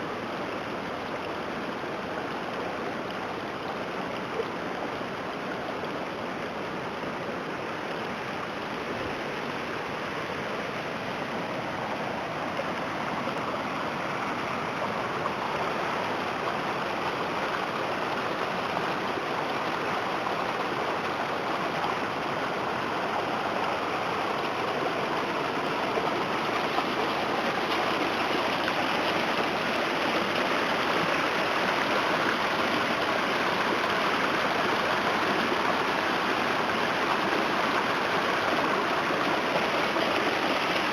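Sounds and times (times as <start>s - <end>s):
floodwater rushing: 7.6s - 40.9s.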